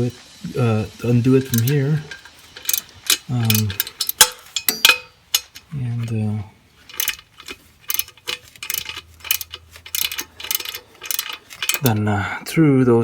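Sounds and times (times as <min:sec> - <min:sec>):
ratchet wrench clicking: 0:01.0 - 0:06.2, 0:06.8 - 0:12.1
metallic clinks of tool: 0:01.4 - 0:06.2, 0:06.8 - 0:12.0.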